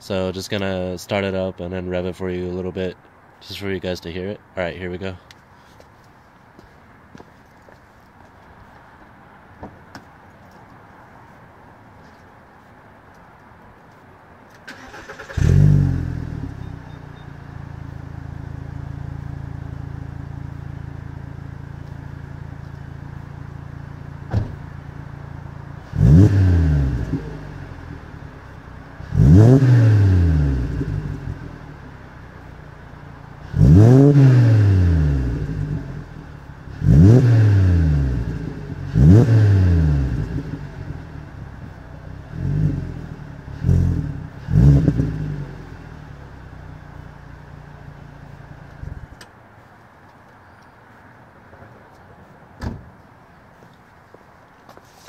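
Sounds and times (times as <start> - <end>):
car engine idling and revving: 14.6 - 49.4.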